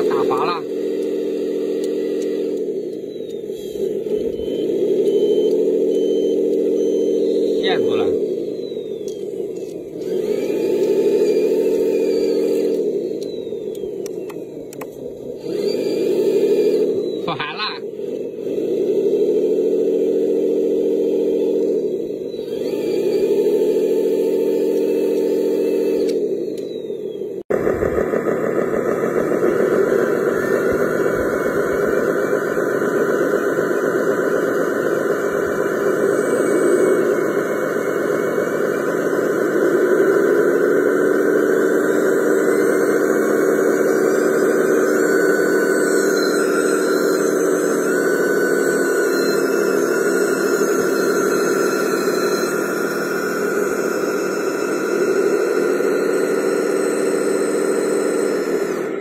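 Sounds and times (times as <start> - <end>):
electric motor and gears whining: 0.0 - 59.0
steady rushing noise: 27.5 - 44.8.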